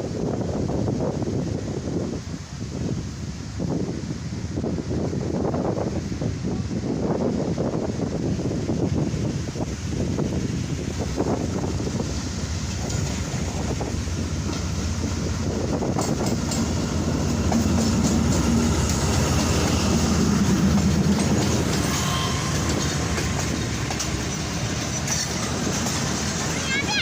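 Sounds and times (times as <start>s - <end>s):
train wheels clacking: 11.2s - 27.0s.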